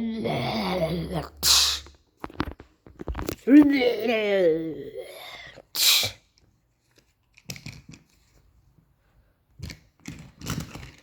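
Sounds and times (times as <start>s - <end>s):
small objects clicking and knocking: 6.4s - 8.3s, 9.5s - 11.0s.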